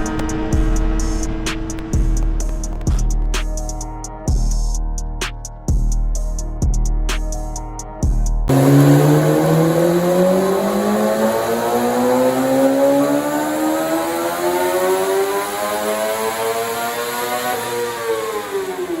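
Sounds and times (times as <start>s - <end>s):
vehicle engine accelerating: 0.0s - 3.9s, 8.5s - 19.0s.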